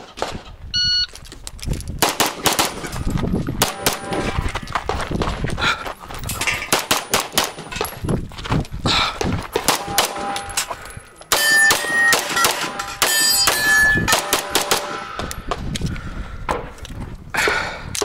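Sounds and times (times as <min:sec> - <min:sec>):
rapid pistol fire: 0:02.0 - 0:02.8, 0:14.1 - 0:15.2
steel targets clanging: 0:09.8 - 0:15.2.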